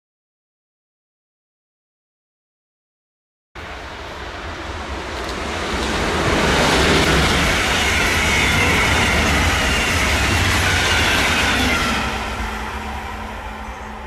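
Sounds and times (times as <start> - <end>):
train wheel and rail noise: 3.6 - 14.0.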